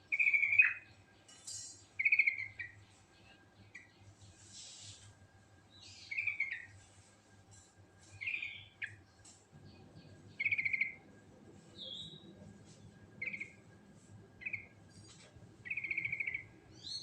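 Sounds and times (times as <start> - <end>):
short hiss: 4.5 - 5.1.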